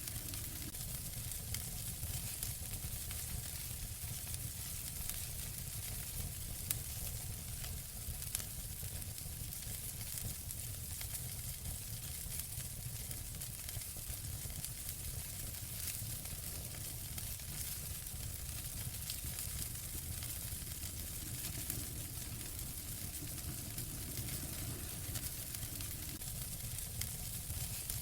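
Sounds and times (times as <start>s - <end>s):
low rumble: 0.0s - 0.7s, 18.8s - 26.2s
fireplace fire crackling: 0.0s - 28.0s.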